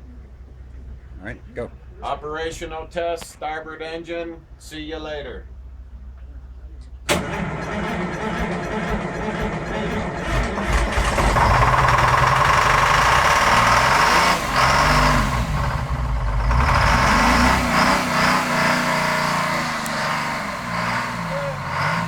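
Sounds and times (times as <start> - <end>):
marine diesel engine cranking and running: 4.4 - 22.0.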